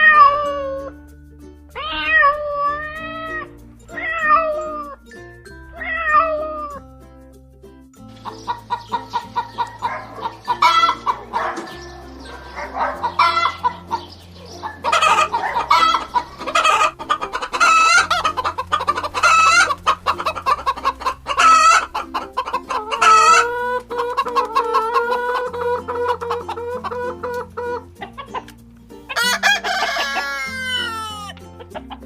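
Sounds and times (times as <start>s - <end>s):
chickens clucking: 1.8s - 6.8s, 8.0s - 32.0s
rooster crowing: 14.8s - 18.3s, 29.2s - 31.4s.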